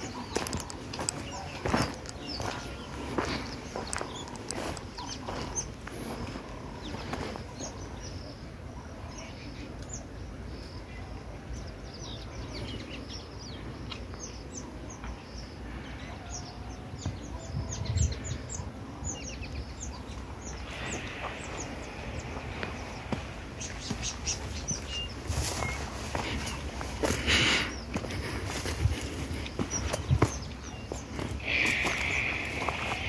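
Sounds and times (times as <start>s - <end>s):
crunching footsteps: 0.0s - 8.1s, 20.0s - 33.0s
small birds chirping: 0.0s - 33.0s
brushing through dry vegetation: 20.6s - 33.0s.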